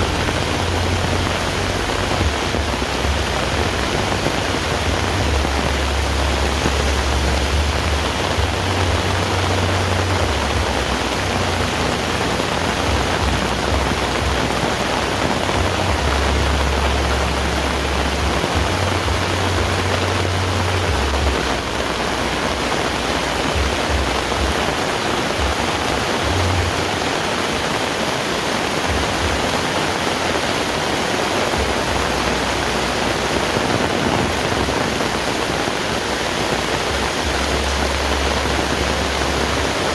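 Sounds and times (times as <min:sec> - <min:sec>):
low rumble: 0:00.0 - 0:27.1
heavy rain hissing: 0:00.0 - 0:39.9.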